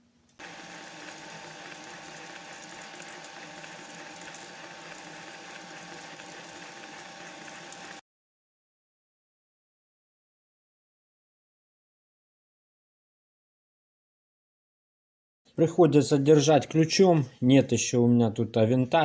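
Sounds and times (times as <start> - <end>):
hole saw cutting steel: 0.4 - 8.0
lathe whining: 0.4 - 8.0.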